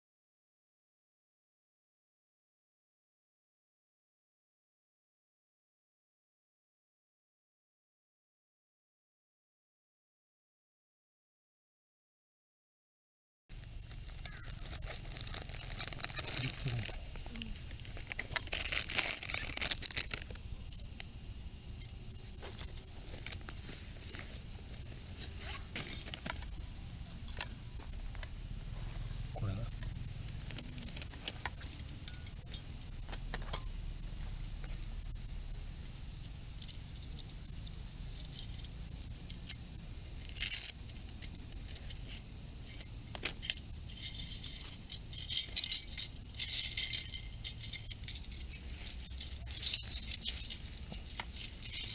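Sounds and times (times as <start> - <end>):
crickets chirring: 13.5 - 51.9.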